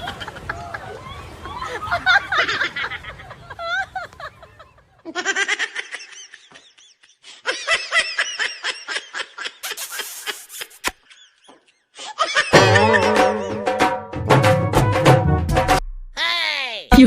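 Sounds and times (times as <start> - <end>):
person laughing: 1.7 - 13.7
brief hiss: 9.6 - 11.0
music with a beat: 12.6 - 15.8.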